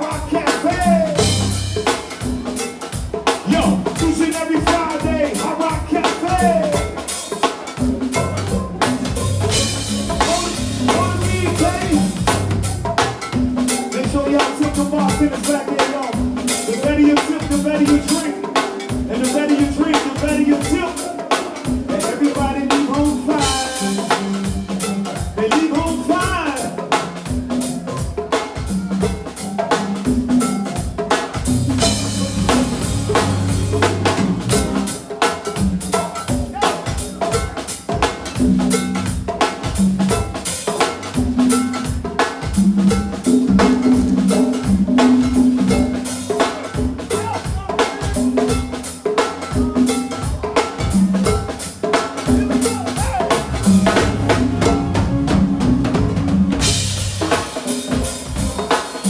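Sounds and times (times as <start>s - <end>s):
drum kit and percussion beat: 0.0s - 59.0s
bass line: 1.0s - 1.9s, 8.1s - 13.2s, 31.5s - 35.0s, 52.3s - 57.4s.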